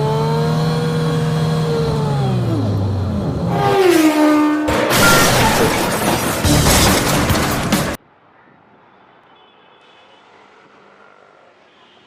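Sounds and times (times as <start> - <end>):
car crash: 4.6 - 8.0.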